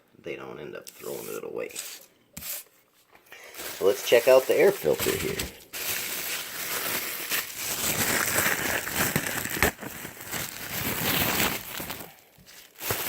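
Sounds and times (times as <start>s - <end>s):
packaging crinkling and rustling: 3.4s - 13.0s.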